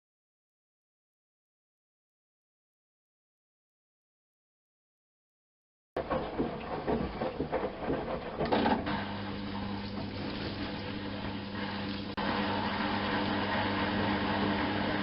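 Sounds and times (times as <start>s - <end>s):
clattering and clicking: 6.0s - 8.9s
washing machine motor hum: 6.0s - 15.0s.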